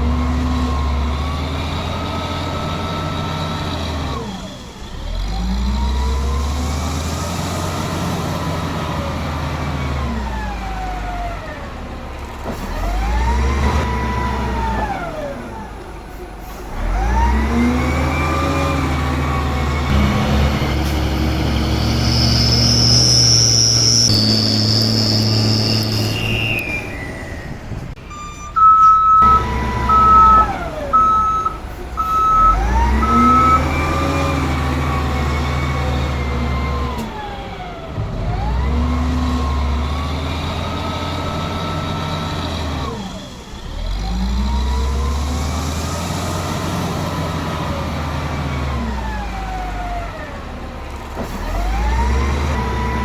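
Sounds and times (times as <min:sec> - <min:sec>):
truck engines revving: 0:00.0 - 0:53.0
reversing alarm beeping: 0:19.8 - 0:35.8.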